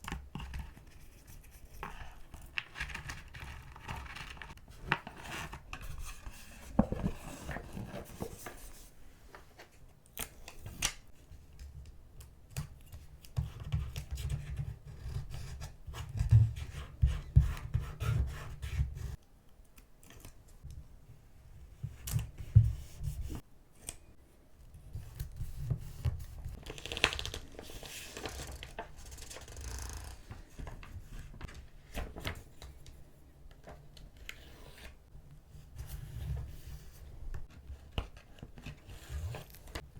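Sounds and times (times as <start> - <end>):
paper rustling and tapping: 6.6 - 8.7, 25.3 - 32.8.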